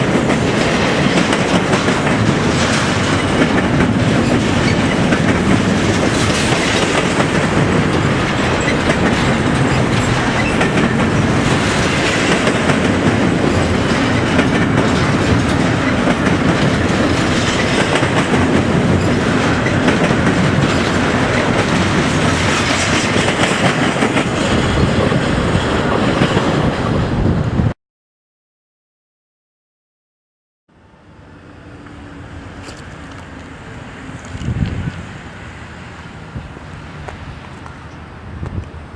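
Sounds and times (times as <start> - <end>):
train wheels clicking over rail joints: 0.0 - 27.0, 31.8 - 35.2.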